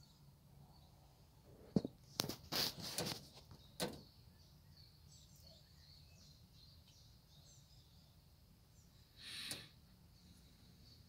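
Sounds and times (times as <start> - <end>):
faint bird chirps: 0.0 - 1.2, 3.4 - 11.0.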